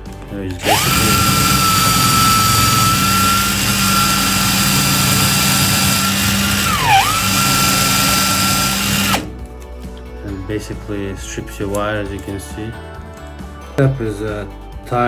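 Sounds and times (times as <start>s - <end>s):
power drill motor whining: 0.6s - 9.4s.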